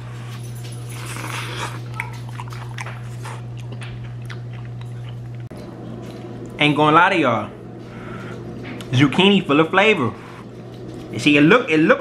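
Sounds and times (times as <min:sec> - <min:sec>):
man chewing with mouth clicks: 0:00.0 - 0:06.6
steady low hum: 0:00.0 - 0:12.0.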